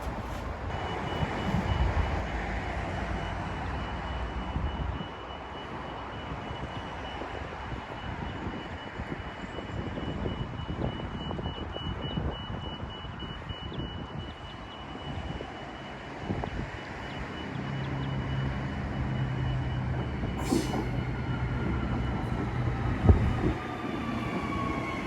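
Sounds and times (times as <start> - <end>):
train rumbling: 0.0 - 3.2, 19.8 - 25.0.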